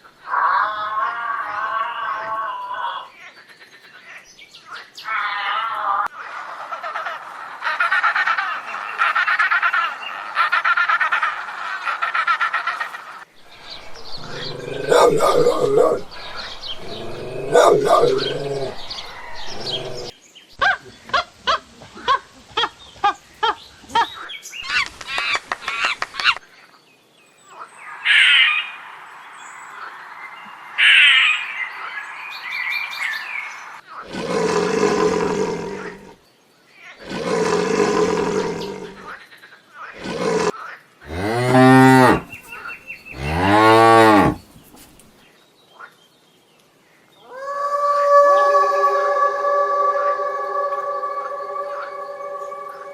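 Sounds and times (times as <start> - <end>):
short rising calls: 13.4 - 20.1
cattle mooing: 41.1 - 42.4, 43.1 - 44.4.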